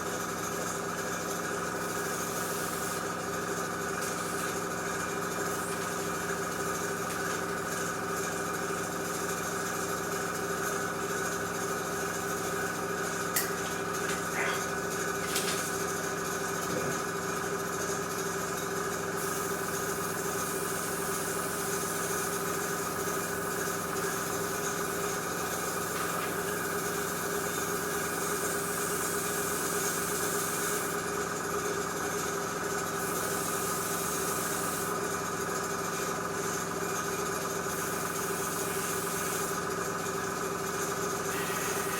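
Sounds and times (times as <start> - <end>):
air compressor humming: 0.0 - 41.9
airbrush spraying hiss: 28.4 - 31.0, 37.7 - 39.6, 41.3 - 41.9.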